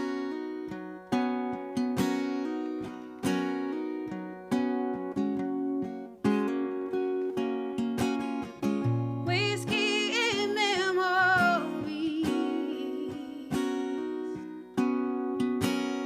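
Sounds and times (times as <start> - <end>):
acoustic guitar strumming: 0.0 - 16.0
woman singing: 9.1 - 14.9.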